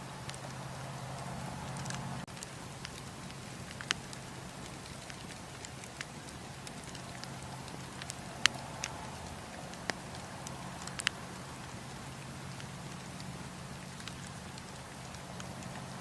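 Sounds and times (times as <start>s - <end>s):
low background rush: 0.0s - 16.0s
campfire pops and snaps: 0.1s - 16.0s.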